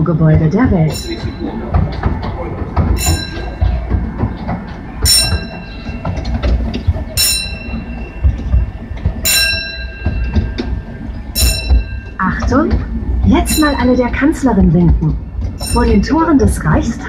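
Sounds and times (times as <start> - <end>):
ride train rumbling: 0.0 - 17.0
bell ringing: 0.8 - 2.1, 2.9 - 4.3, 5.0 - 6.4, 7.2 - 12.8, 13.4 - 14.3, 15.4 - 16.4.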